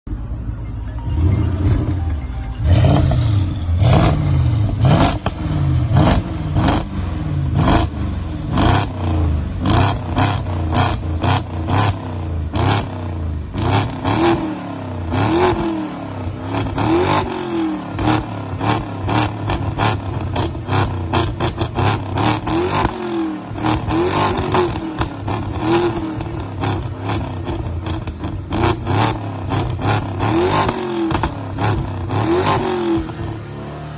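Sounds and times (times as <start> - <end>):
car engine revving: 1.1 - 33.9
exhaust cracks: 16.5 - 33.4.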